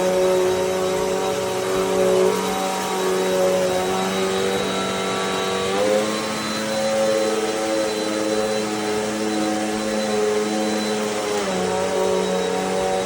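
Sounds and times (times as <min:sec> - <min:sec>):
vacuum cleaner motor hum: 0:00.0 - 0:13.0.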